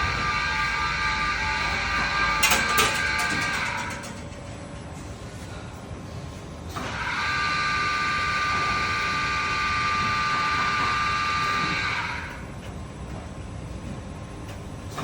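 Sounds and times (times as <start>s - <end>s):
machine noise: 0.0s - 5.6s, 6.8s - 12.6s
high multi-tone machine whine: 0.0s - 5.7s, 6.8s - 13.5s.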